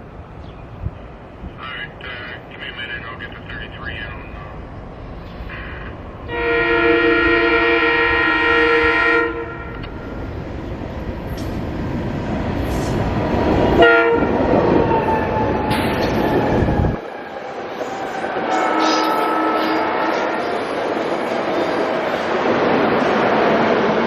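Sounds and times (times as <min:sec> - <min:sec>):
train rumbling on rails: 0:00.0 - 0:24.0
train chime horn: 0:06.3 - 0:09.8, 0:13.8 - 0:15.5, 0:18.4 - 0:20.5.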